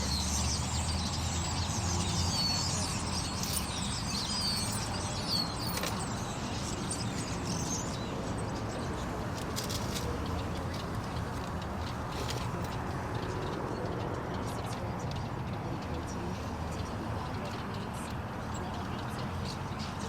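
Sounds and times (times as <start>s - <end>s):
small birds chirping and twittering: 0.0s - 20.0s.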